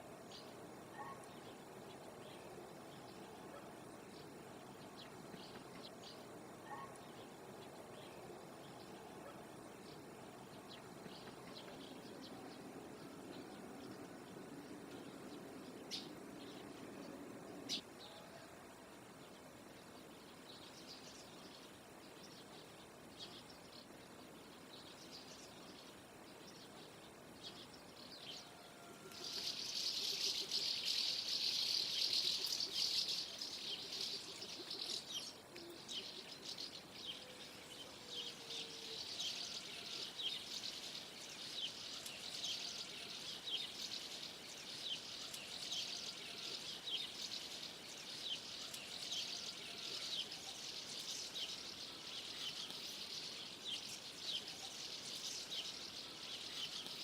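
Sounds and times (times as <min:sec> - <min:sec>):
flock of martins chirping: 0:20.3 - 0:57.0.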